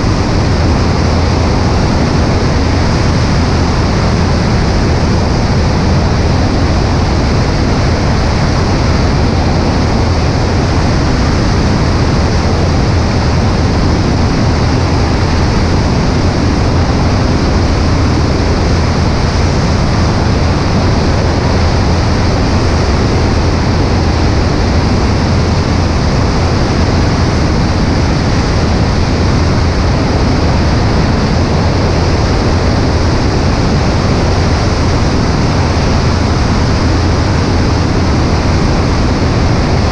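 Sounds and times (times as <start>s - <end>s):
airplane engine and propeller drone: 0.0s - 39.9s
rush of air: 0.0s - 39.9s.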